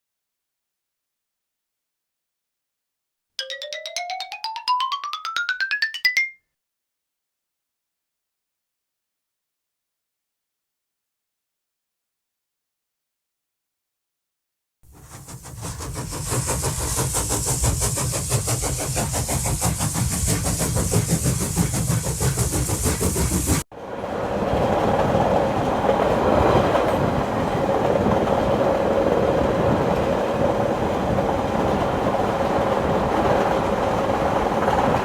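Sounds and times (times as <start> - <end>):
train wheels clacking on rails: 15.0 - 23.6.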